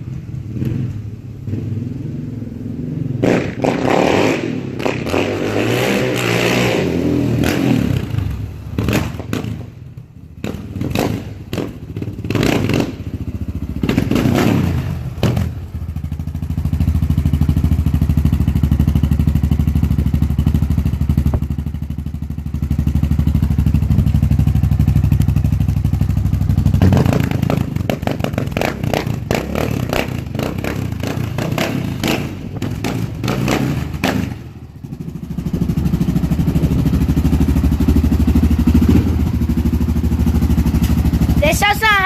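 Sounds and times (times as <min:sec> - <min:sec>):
atv engine idling and revving: 0:00.0 - 0:42.0.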